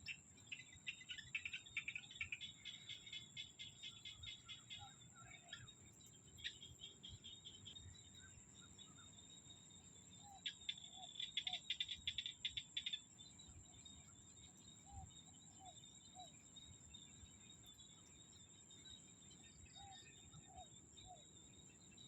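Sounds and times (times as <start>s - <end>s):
frogs rapid pulsing calls: 0.0s - 5.8s, 10.2s - 13.1s
high-pitched insect trill: 0.0s - 22.0s.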